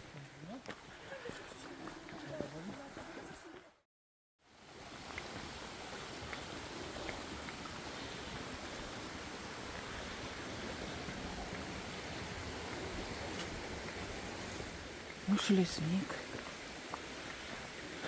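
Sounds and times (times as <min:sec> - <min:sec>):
mountain stream rushing: 0:04.5 - 0:18.0.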